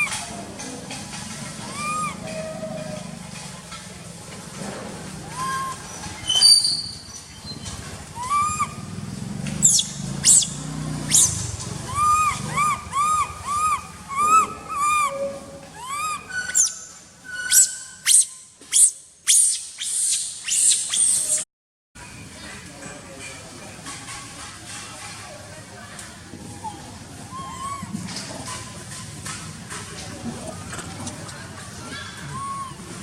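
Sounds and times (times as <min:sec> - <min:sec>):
baby monkey crying: 0:01.6 - 0:02.4, 0:05.3 - 0:05.8, 0:08.2 - 0:08.8, 0:11.9 - 0:16.7, 0:26.6 - 0:27.9, 0:31.9 - 0:33.0.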